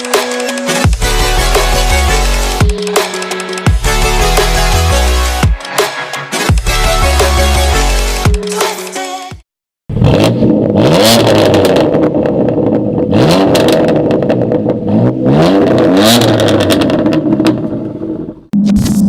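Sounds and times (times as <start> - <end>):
music: 0.0 - 9.4
car engine revving: 9.9 - 19.0
exhaust cracks: 9.9 - 19.0.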